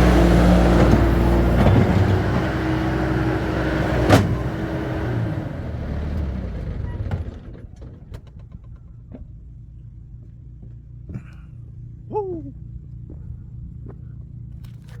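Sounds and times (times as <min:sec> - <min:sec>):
engine idling: 0:00.0 - 0:10.2.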